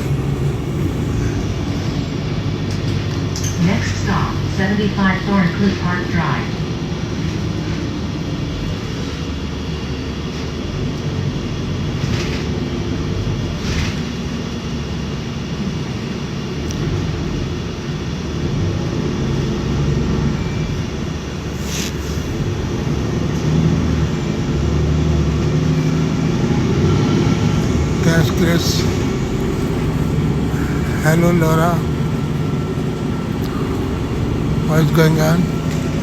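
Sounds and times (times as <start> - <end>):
bus engine and road rumble: 0.0 - 36.0
brief air hisses: 21.5 - 22.4.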